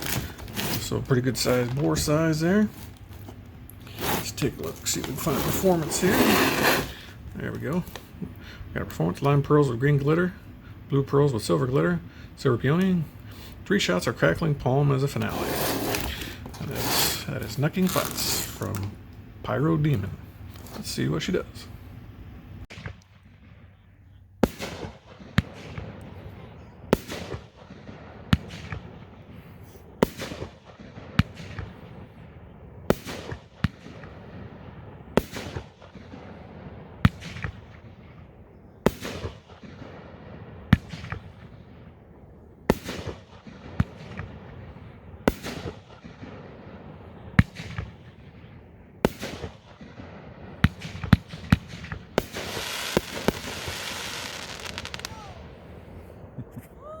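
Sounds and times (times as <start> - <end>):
fireworks crackling: 0.0 - 10.1, 12.4 - 19.0, 50.6 - 57.0
fireworks cake firing bangs: 3.9 - 8.1, 24.4 - 32.2, 32.8 - 38.2, 38.8 - 41.7, 42.6 - 56.3.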